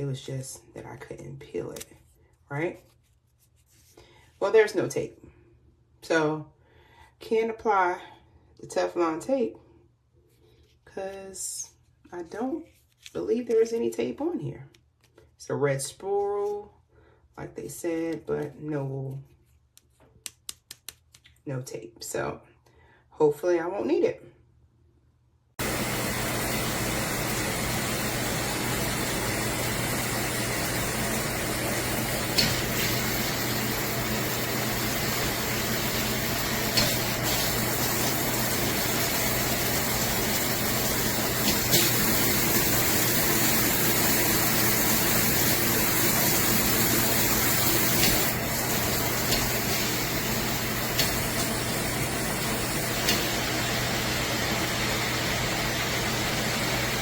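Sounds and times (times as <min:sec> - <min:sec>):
water spraying from shower head: 0:25.6 - 0:57.0.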